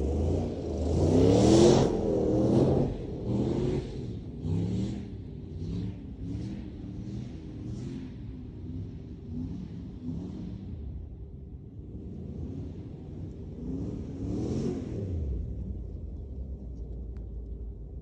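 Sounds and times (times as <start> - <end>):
engine revving hard: 0.0 - 6.5.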